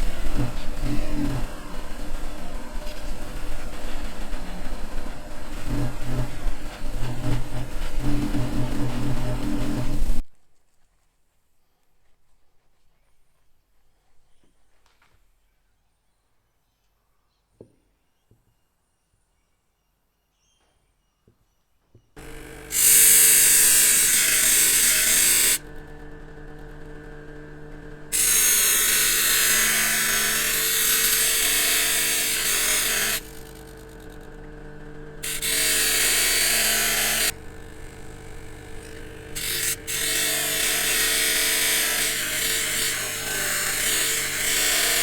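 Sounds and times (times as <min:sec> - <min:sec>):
power tool motor humming: 0:00.0 - 0:10.2, 0:22.2 - 0:45.0.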